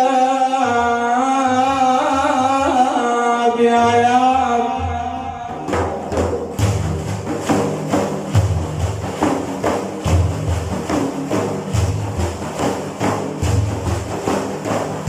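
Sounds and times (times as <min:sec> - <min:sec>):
person singing: 0:00.0 - 0:06.2
frame drums played by hand: 0:03.8 - 0:15.0.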